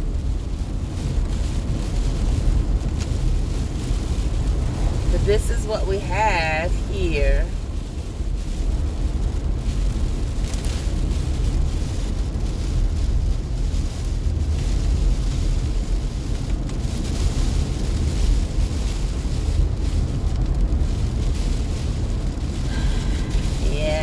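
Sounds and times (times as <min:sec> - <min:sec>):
car driving on wet road: 0:00.0 - 0:24.0
rain and road spray hiss: 0:00.0 - 0:24.0.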